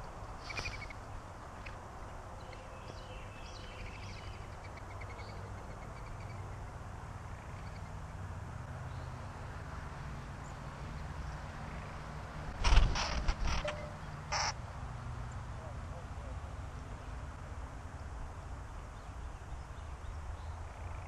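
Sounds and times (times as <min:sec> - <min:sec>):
bird trill: 0:00.0 - 0:01.0, 0:13.5 - 0:14.6
faint birds chirping: 0:00.0 - 0:09.6.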